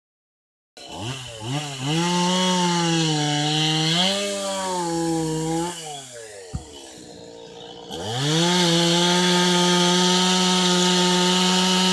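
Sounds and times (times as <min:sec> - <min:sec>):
chainsaw engine revving: 0:00.8 - 0:11.9.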